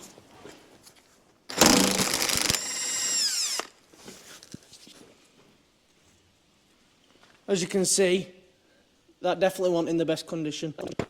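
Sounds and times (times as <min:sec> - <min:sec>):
impact wrench hammering: 0:01.5 - 0:02.7
motor winding down: 0:01.5 - 0:03.8.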